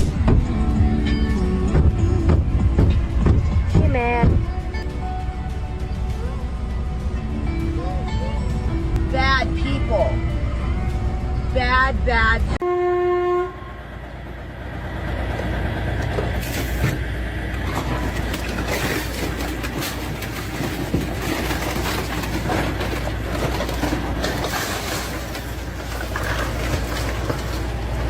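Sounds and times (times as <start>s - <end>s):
train rumbling past: 0.0s - 18.8s
wheel clatter on rails: 14.0s - 28.0s.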